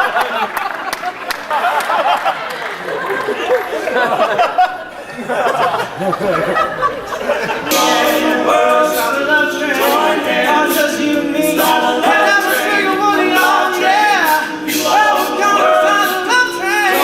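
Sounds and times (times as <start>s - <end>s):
a cappella group singing: 7.2s - 17.0s.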